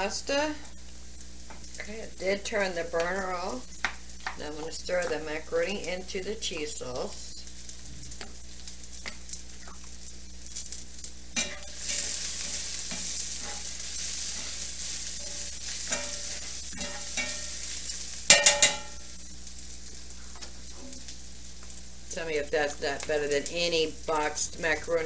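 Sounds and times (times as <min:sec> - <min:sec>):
onions sizzling in a skillet: 0:00.0 - 0:25.0
metallic clanks: 0:18.3 - 0:19.1.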